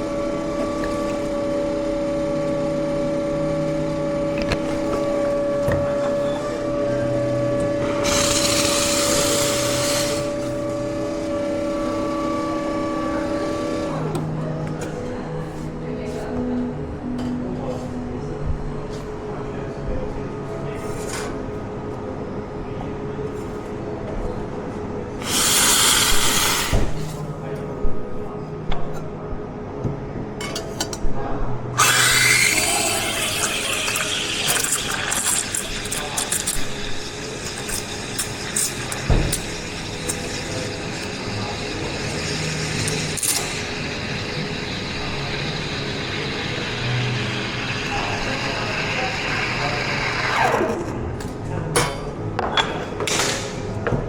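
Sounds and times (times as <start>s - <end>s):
coffee grinder motor whining: 7.6s - 13.9s, 25.2s - 26.7s, 31.8s - 50.9s.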